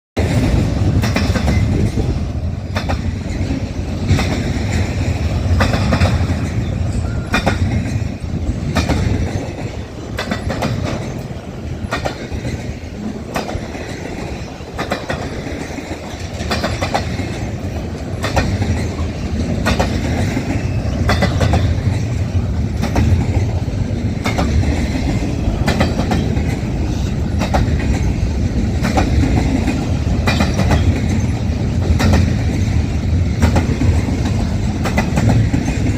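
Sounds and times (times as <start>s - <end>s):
train rumbling on track: 0.2s - 35.9s
wheels clacking on rail joints: 0.2s - 35.9s.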